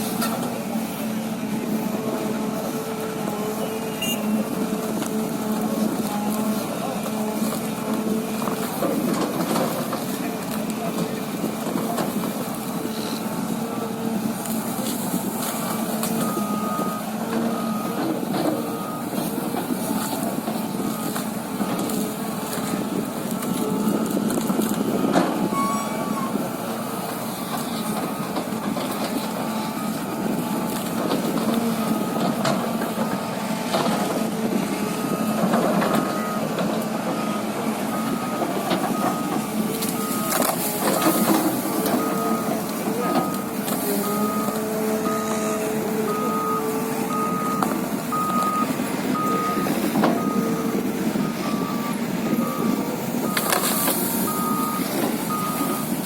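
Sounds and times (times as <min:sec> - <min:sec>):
excavator engine running: 0:00.0 - 0:56.0
warning alarm beeping: 0:03.5 - 0:04.7, 0:25.0 - 0:27.2, 0:37.1 - 0:56.0.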